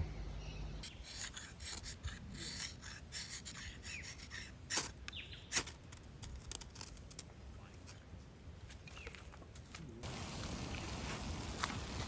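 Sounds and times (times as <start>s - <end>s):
short rasping scrapes: 0.8s - 5.8s.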